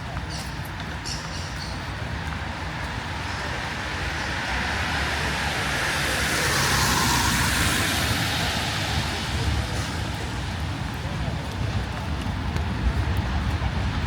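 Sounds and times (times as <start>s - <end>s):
low city traffic rumble: 0.0s - 14.0s
vehicle passing close by: 2.9s - 10.7s.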